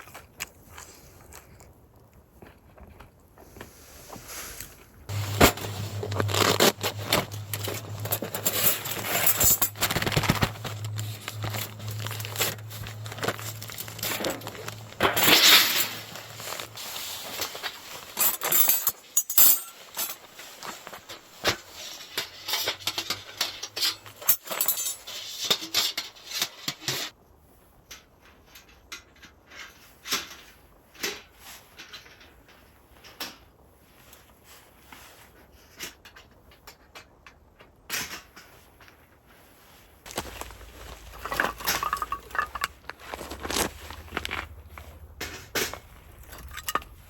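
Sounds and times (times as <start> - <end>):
low steady hum: 5.1 - 21.1, 40.1 - 47.0.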